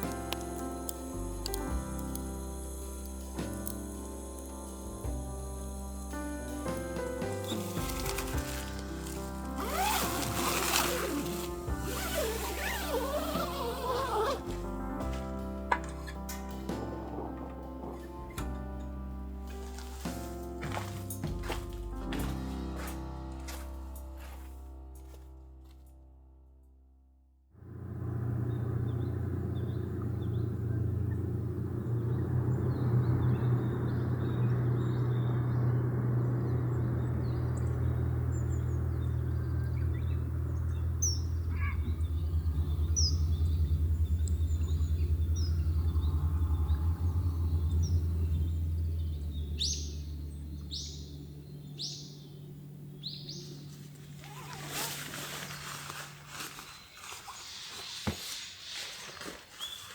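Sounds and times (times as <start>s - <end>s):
small birds chirping: 0.0s - 15.3s, 28.2s - 59.9s
steady low hum: 0.0s - 25.2s, 27.6s - 56.8s.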